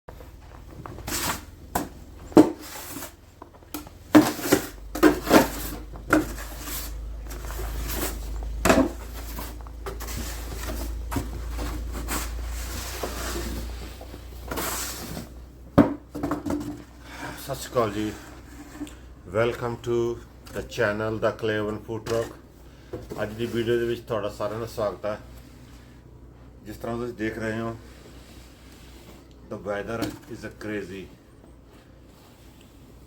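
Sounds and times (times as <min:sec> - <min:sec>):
low steady hum: 0:00.1 - 0:33.0
kitchen clatter: 0:03.8 - 0:13.6.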